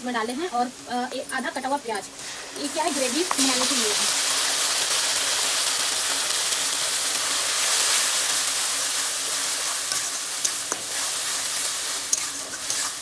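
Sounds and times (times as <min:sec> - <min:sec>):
paste sizzling in hot oil: 0:01.8 - 0:13.0
spatula stirring: 0:08.3 - 0:13.0.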